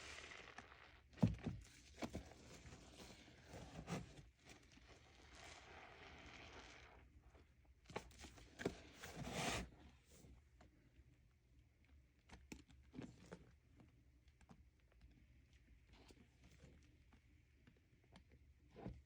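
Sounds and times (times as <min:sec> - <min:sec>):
wet sponge squelching: 0:00.0 - 0:01.1, 0:04.5 - 0:07.4.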